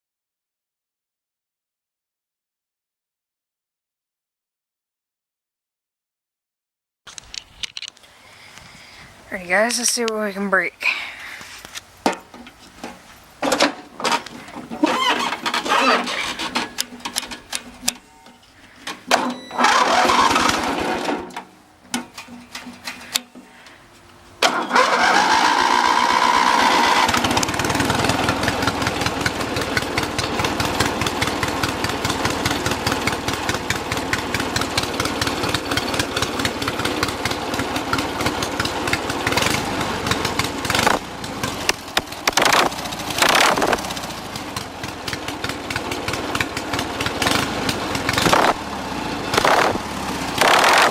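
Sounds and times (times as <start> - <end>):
lawn mower engine starting: 11.2 - 50.9.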